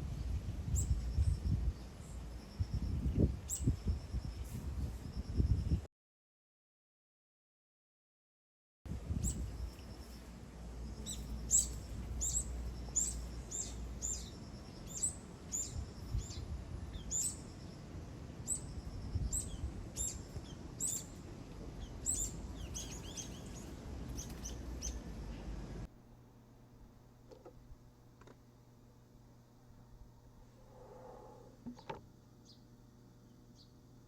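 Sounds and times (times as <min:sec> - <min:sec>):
bird chirping: 0:09.2 - 0:21.2, 0:21.8 - 0:25.5, 0:30.6 - 0:32.7, 0:33.3 - 0:33.8.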